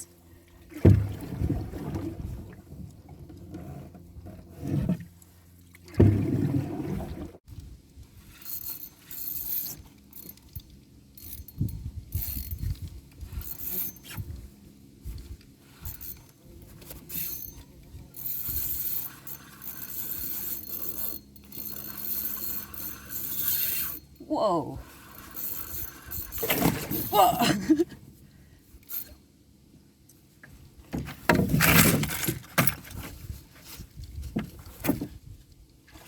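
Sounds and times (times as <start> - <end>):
fishing reel clicking and whirring: 8.3 - 14.3, 15.7 - 24.2, 24.8 - 27.1, 28.8 - 29.2.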